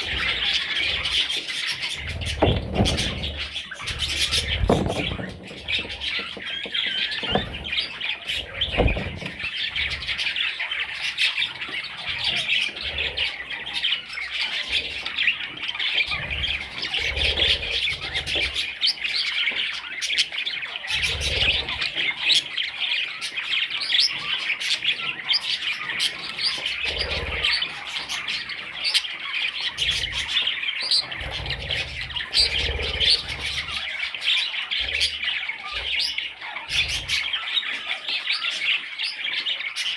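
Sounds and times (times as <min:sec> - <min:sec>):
chicks chirping and squawking: 0:00.0 - 0:39.9
low bumps: 0:01.9 - 0:10.2.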